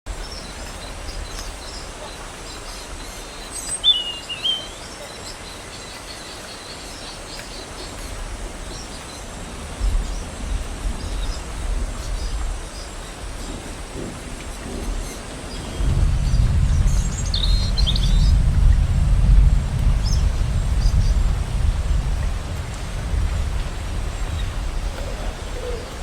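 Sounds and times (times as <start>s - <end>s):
small birds chirping: 0.1s - 21.6s
uneven low rumble: 9.4s - 26.0s.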